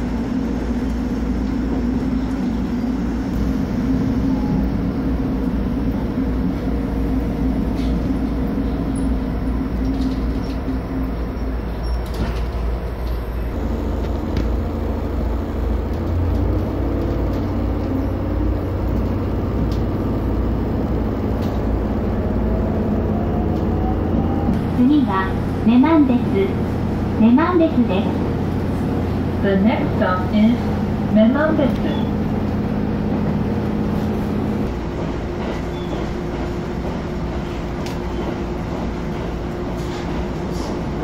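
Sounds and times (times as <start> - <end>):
train engine hum: 0.0 - 41.0
wheels rumbling on rail: 0.0 - 41.0
rising whine: 0.2 - 9.8.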